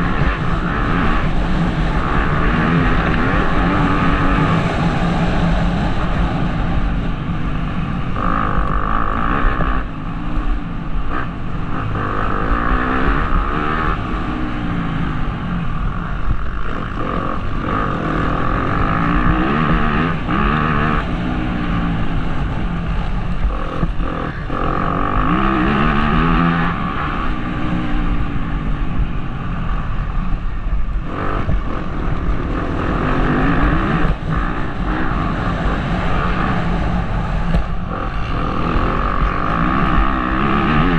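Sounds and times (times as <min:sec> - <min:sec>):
motorbike engine revving: 0:00.0 - 0:40.9
wind rumble on microphone: 0:00.0 - 0:40.9.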